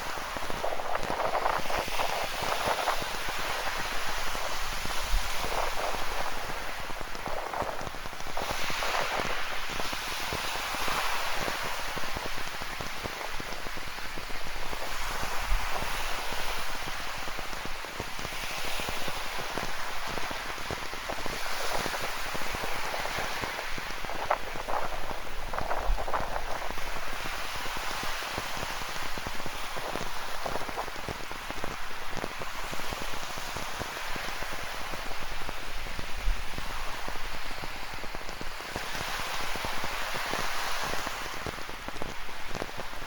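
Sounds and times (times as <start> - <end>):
steady rain falling: 0.0 - 43.0
waves washing on rocky shore: 0.0 - 43.0.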